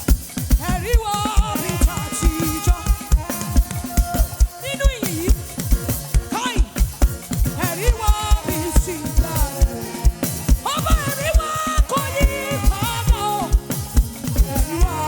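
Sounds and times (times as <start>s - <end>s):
gospel band playing: 0.0s - 15.0s
people singing: 0.6s - 15.0s.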